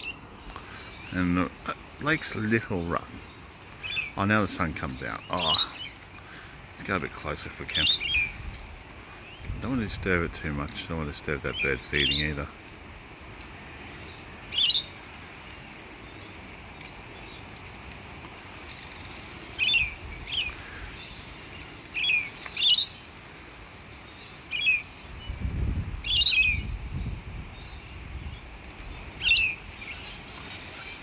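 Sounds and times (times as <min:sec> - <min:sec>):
wind buffeting microphone: 0:06.6 - 0:11.8, 0:25.0 - 0:31.0.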